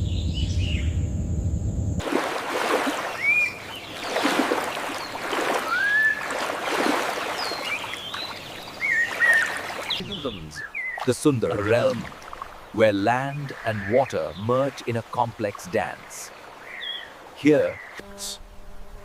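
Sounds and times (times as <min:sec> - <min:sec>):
water sloshing and lapping: 0:02.0 - 0:17.4
whistled bird calls: 0:03.1 - 0:04.1, 0:04.9 - 0:06.4, 0:07.3 - 0:11.1.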